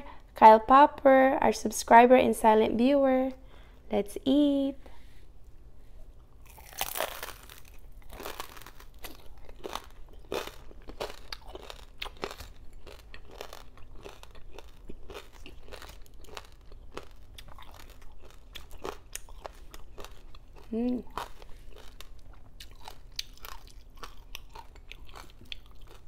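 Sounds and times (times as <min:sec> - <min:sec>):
crunchy chewing: 0:06.3 - 0:26.0
crunchy bite: 0:06.4 - 0:26.0.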